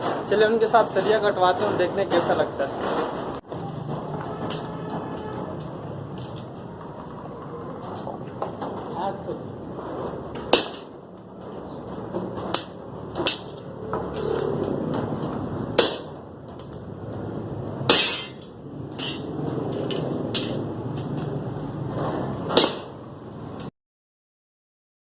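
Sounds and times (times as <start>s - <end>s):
low rumble of site noise: 0.0s - 23.7s
ringing metal strikes: 17.9s - 19.4s.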